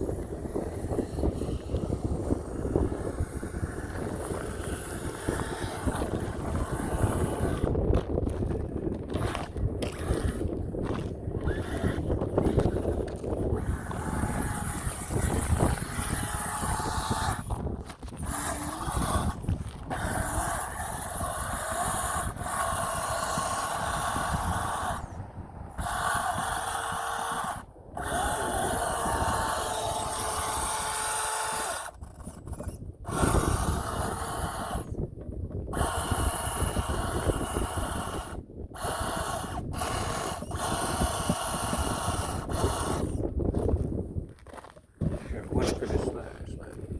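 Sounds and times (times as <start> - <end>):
rc truck motor whining: 0.0 - 46.9.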